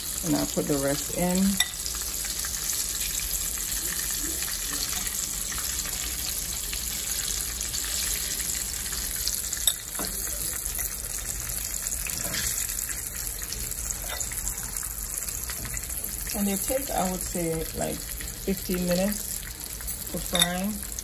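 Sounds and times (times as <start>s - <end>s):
oil sizzling in a skillet: 0.0s - 21.0s
fork tapping glass bowl: 9.6s - 10.2s, 20.3s - 20.6s.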